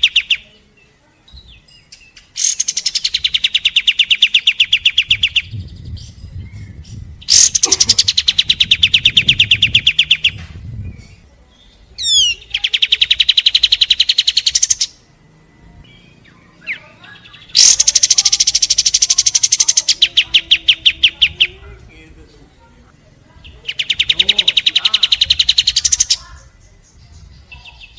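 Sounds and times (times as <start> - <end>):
bird trilling sharp notes: 7.2 - 10.4, 12.0 - 15.1, 15.9 - 21.6.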